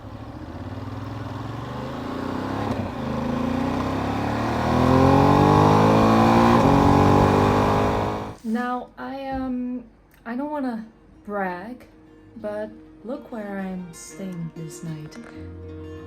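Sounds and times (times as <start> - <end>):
motorcycle engine accelerating: 0.0 - 8.4.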